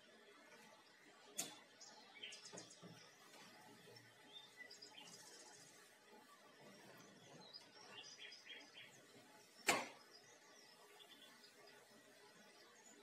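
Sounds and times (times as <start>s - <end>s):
faint birdsong: 0.0s - 13.0s.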